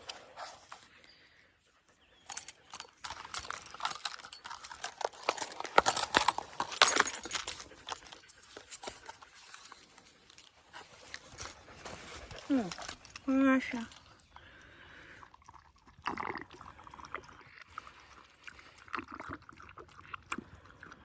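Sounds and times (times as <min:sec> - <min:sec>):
dog collar tags jingling: 0:02.2 - 0:14.7
crunching footsteps on trail: 0:02.3 - 0:14.1.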